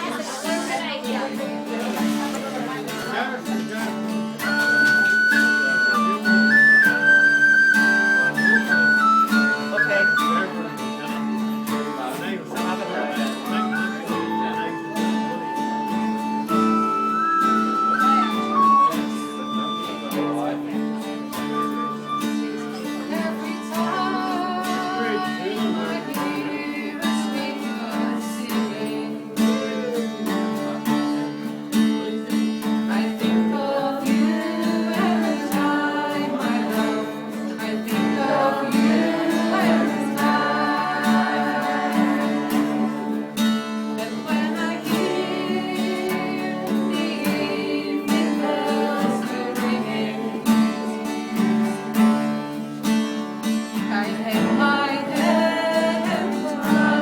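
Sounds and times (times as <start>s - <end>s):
strummed acoustic guitar: 0.0s - 57.0s
person singing: 21.6s - 31.2s, 32.9s - 52.2s, 53.9s - 57.0s.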